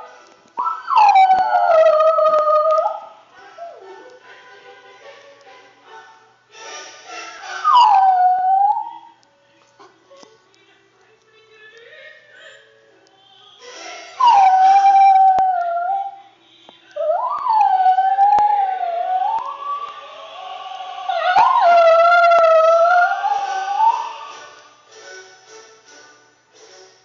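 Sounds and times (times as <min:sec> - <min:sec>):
operatic aria music: 0:00.0 - 0:09.3, 0:13.6 - 0:16.2, 0:16.9 - 0:27.0
dog howling: 0:00.6 - 0:03.8, 0:07.6 - 0:09.1, 0:14.2 - 0:16.2, 0:17.0 - 0:24.3.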